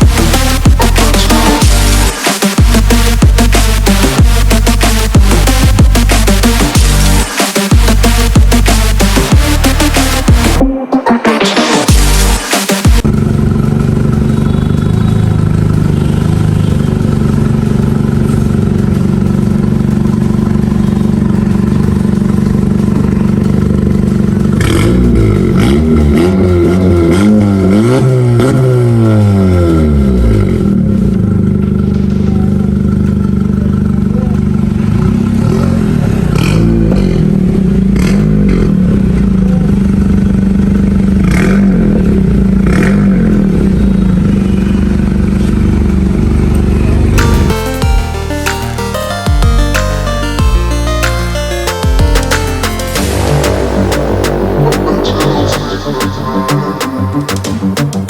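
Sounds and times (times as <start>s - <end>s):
car engine idling and revving: 0.0s - 10.7s, 11.5s - 58.0s.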